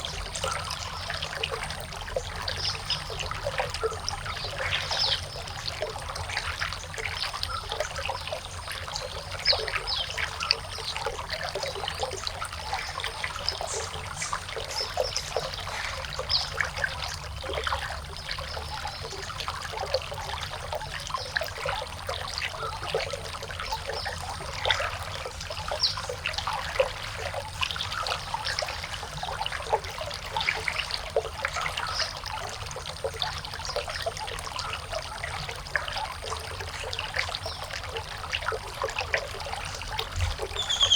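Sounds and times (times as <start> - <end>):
water trickling and splashing: 0.0 - 40.9.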